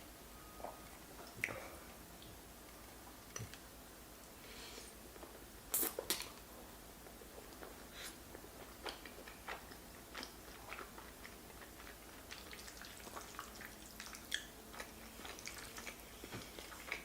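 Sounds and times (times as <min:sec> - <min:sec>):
wet chewing mouth sounds: 0:07.0 - 0:17.0.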